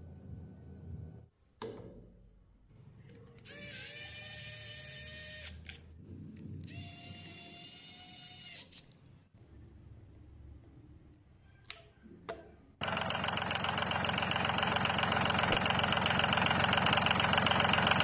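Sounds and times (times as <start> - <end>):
small motor whining: 3.4 - 5.6, 6.7 - 8.9.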